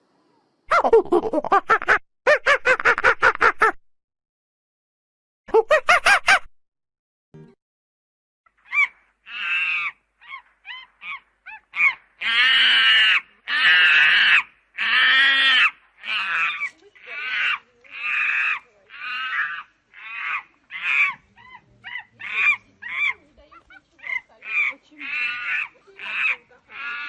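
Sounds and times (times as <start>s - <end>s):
monkey calling harshly: 8.6s - 27.0s.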